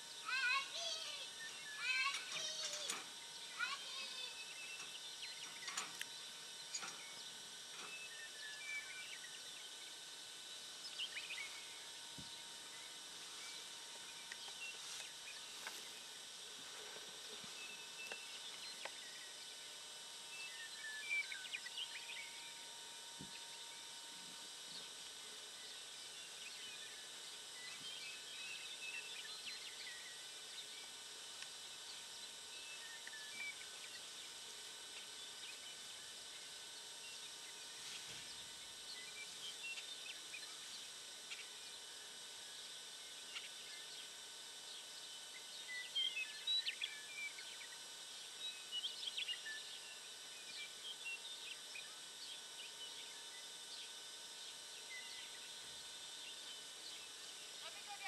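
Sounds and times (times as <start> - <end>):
birds chirping: 0.0 - 31.0
steady background hiss: 0.0 - 58.0.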